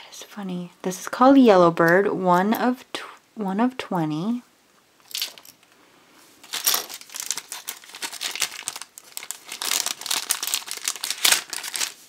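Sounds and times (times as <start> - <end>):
plastic wrapper crinkling: 6.4 - 12.0.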